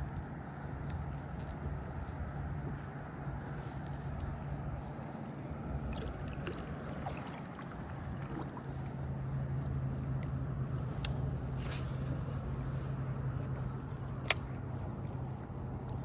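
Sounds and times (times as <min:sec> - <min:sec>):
boat motor droning: 0:00.2 - 0:16.0
water noise: 0:03.8 - 0:16.0.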